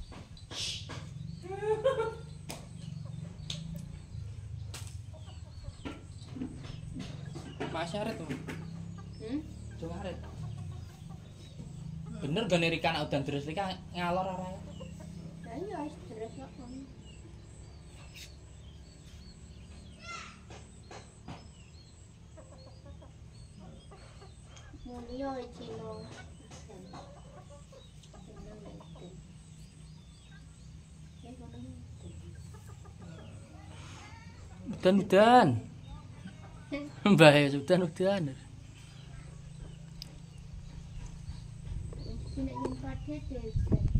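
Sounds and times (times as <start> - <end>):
small birds chirping: 0.0 - 43.9
low background rumble: 38.5 - 43.9.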